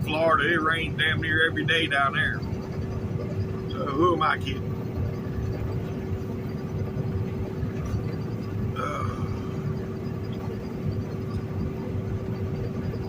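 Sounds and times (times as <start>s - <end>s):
faint steady hum: 0.0s - 13.0s
truck engine and road rumble: 0.0s - 13.0s.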